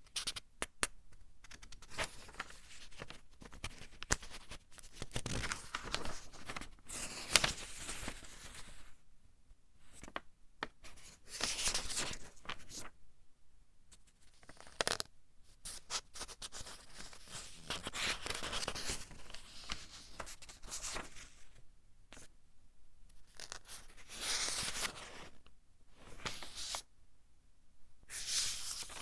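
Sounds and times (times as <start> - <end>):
book pages turning: 16.7 - 19.1.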